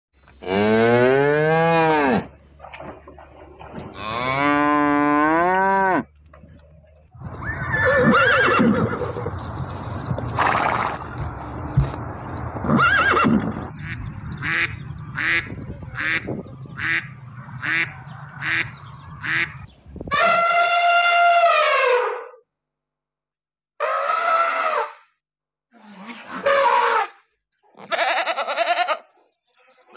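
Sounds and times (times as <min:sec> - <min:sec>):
cow mooing: 0:00.4 - 0:02.3, 0:03.9 - 0:06.1
horse whinnying: 0:07.3 - 0:09.3, 0:10.3 - 0:11.0, 0:12.6 - 0:13.6
duck quacking: 0:13.7 - 0:19.6.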